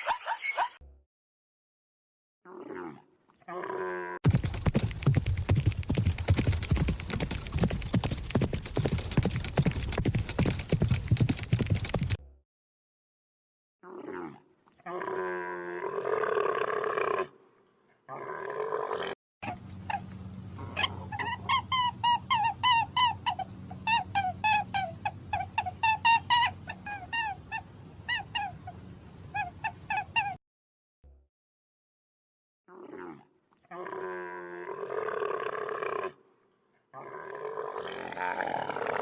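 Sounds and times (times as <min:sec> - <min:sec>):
animal calls: 0:19.4 - 0:30.4.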